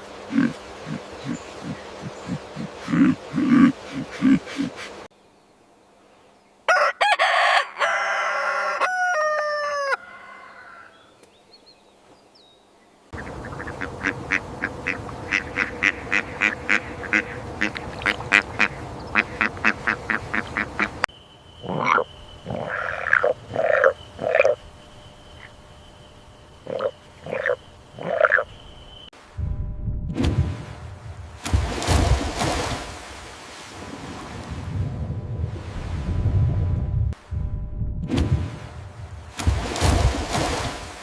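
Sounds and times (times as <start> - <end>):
honking animal call: 13.2 - 21.0, 21.6 - 24.6, 26.6 - 28.5.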